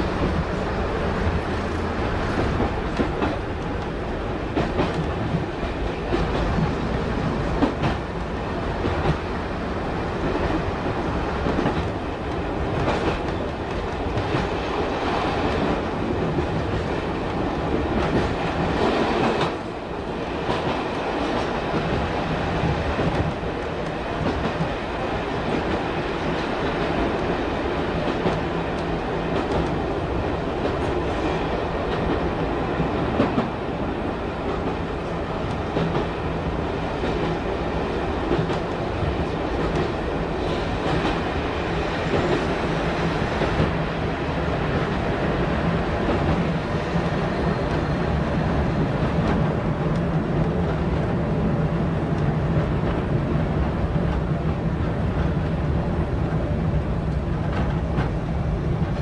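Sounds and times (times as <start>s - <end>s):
train wheel and engine noise: 0.0s - 59.0s.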